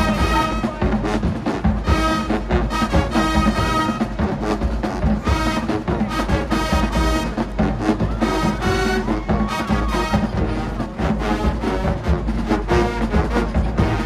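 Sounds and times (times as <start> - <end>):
brass melody: 0.0 - 14.0
marching band playing: 0.0 - 14.0
percussion hits: 8.6 - 14.0.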